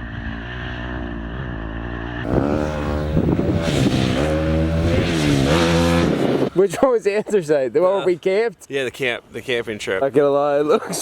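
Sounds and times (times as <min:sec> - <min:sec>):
pit bike engine revving: 0:00.0 - 0:06.6.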